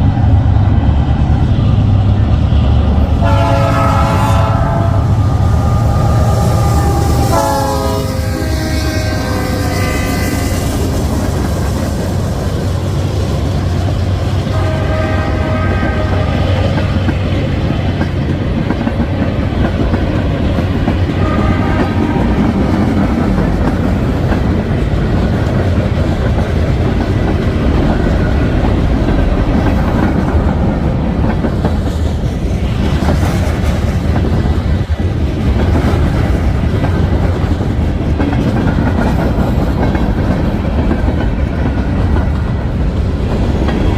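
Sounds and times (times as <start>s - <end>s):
train rumble and wheel clatter: 0.0s - 43.9s
short train horn notes: 3.2s - 10.8s, 14.5s - 16.5s, 21.2s - 22.1s.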